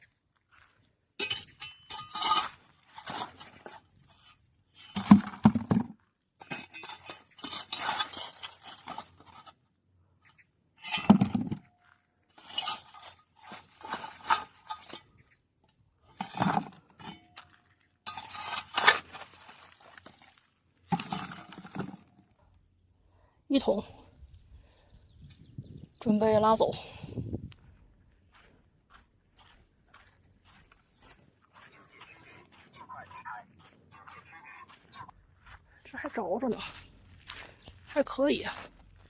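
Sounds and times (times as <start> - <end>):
shovel scraping dry dung: 1.2 - 5.6, 6.4 - 9.6, 12.3 - 15.3, 18.1 - 22.2.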